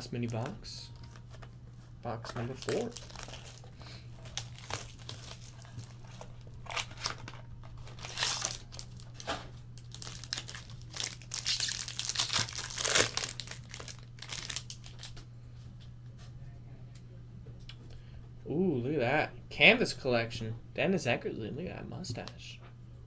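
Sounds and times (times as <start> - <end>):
plastic wrapping crinkling and tearing: 0.0 - 15.2
steady low hum: 0.0 - 23.0.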